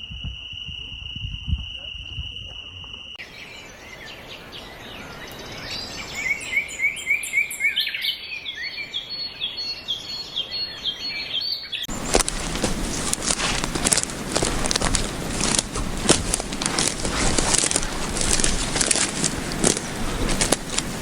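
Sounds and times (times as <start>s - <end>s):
birds chirping: 3.0s - 21.0s
background hiss: 11.9s - 21.0s
loud crackling noise: 11.9s - 21.0s.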